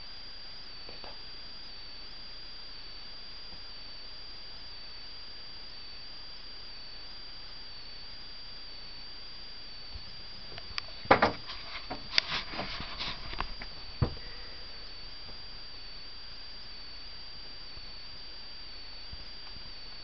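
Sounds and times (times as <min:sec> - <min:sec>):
faint high whine: 0:00.0 - 0:20.0
steady hiss: 0:09.7 - 0:20.0
sharp knocks and clicks: 0:11.0 - 0:12.7.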